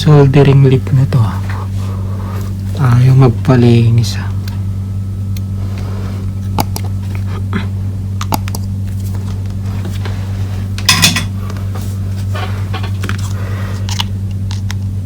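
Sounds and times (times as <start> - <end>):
low electrical hum: 0.0 - 15.0
soldering iron clinking on metal: 10.8 - 11.3.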